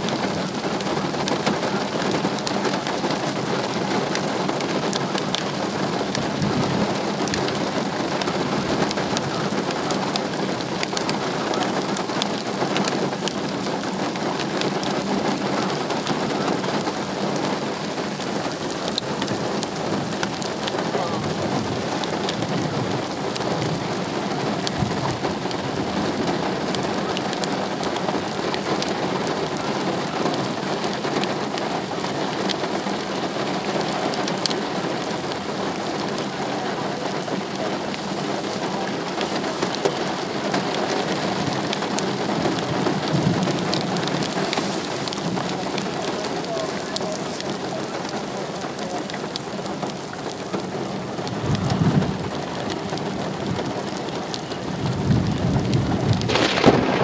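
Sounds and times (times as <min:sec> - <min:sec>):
heavy rain falling: 0:00.0 - 0:57.0
low rumble of thunder: 0:05.8 - 0:10.5, 0:16.8 - 0:28.8, 0:41.2 - 0:45.8, 0:51.1 - 0:57.0.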